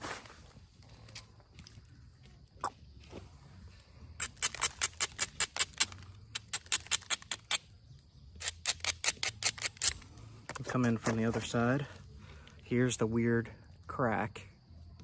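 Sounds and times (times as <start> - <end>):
tool clicking on stone: 4.2 - 7.6, 8.4 - 10.0.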